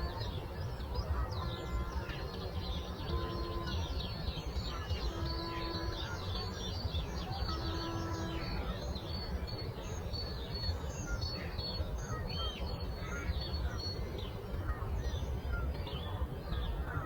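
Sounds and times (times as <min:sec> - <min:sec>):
songbirds chirping and singing: 0:00.0 - 0:17.0.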